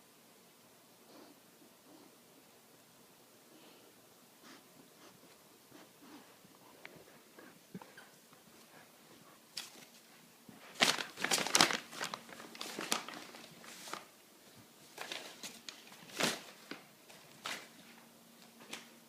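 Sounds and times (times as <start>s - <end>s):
toy rustling and crinkling: 9.5s - 14.1s.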